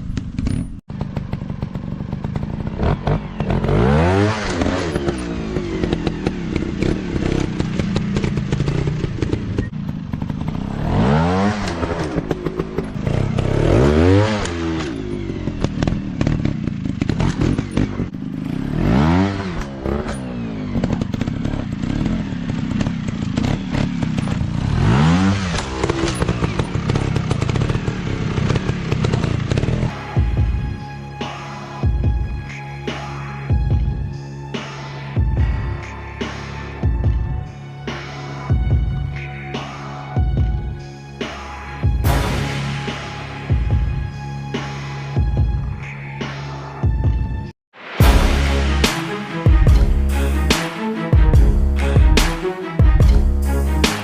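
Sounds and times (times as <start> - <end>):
dirt bike engines revving: 1.0 - 30.0.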